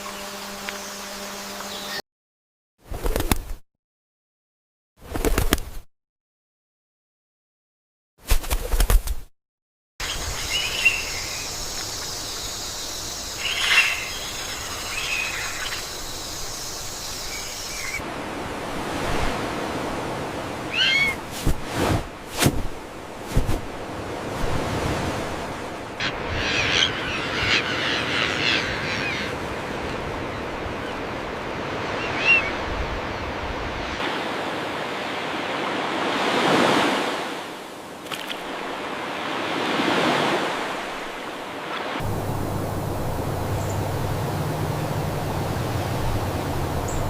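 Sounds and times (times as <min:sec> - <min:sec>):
bird chirps and calls: 0:10.0 - 0:18.0, 0:20.7 - 0:21.2, 0:26.0 - 0:29.3
steady background hiss: 0:42.0 - 0:47.0.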